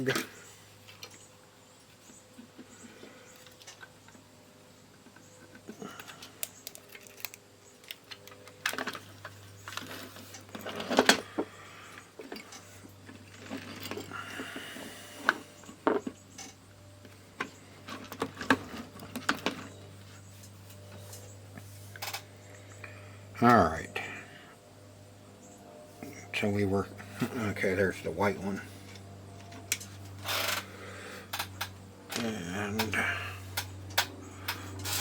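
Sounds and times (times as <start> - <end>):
faint low hum: 0.0 - 35.0
clicks and rattles of plastic parts: 5.1 - 11.5, 17.4 - 19.7.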